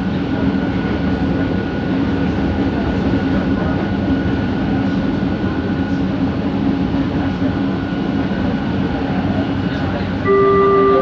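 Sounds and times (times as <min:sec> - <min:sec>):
train running rumble: 0:00.0 - 0:11.0
high motor whine: 0:10.2 - 0:11.0.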